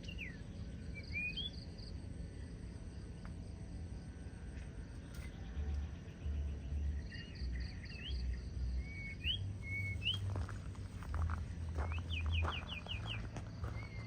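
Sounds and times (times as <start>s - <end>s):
bird singing whistled notes: 0.0s - 1.9s, 5.2s - 10.6s, 11.8s - 14.0s.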